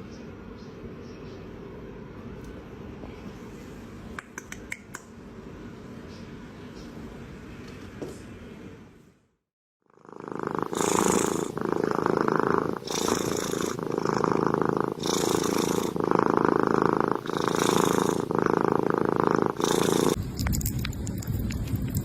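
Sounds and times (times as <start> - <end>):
cat purring: 9.9 - 22.0.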